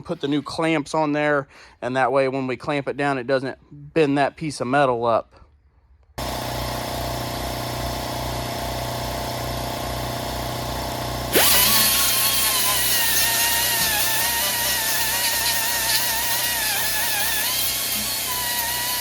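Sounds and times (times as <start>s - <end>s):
grinder grinding steel: 10.9s - 19.0s.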